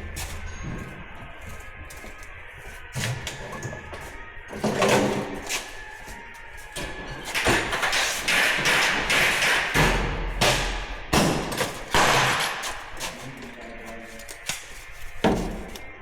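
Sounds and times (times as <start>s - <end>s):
rustling and scraping: 0.0s - 8.3s, 12.5s - 16.0s.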